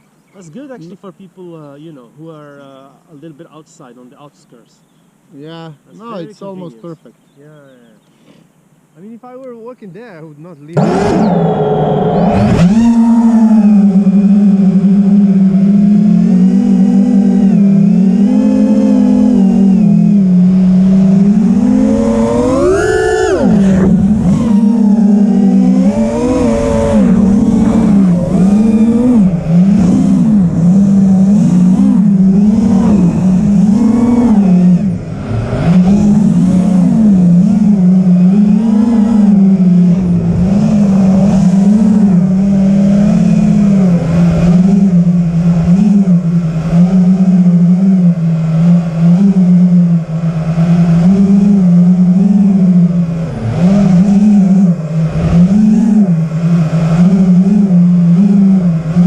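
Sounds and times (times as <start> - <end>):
loud engine running: 10.8 - 59.0.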